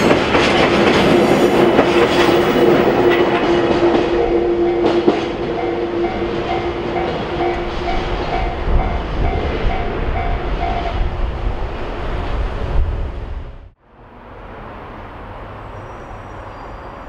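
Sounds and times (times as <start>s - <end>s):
train wheels clattering on rails: 0.0s - 11.1s.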